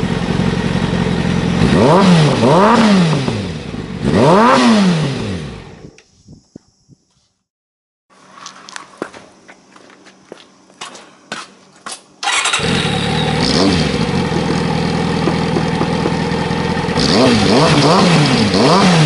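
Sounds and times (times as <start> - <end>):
motorcycle engine idling: 0.0 - 1.9, 12.2 - 18.6
engine revving: 0.0 - 5.9, 12.2 - 19.0.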